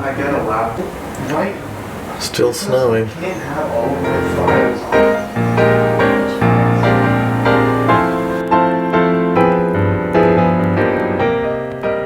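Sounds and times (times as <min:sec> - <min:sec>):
piano music: 0:03.2 - 0:12.0.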